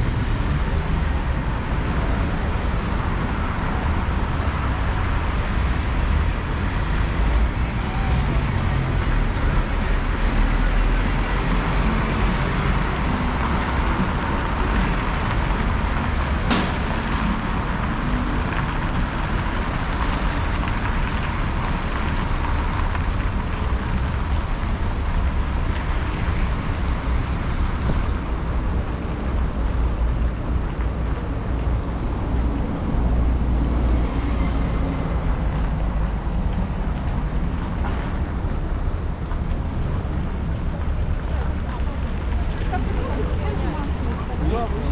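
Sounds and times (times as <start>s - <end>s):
street traffic road noise: 0.0s - 44.9s.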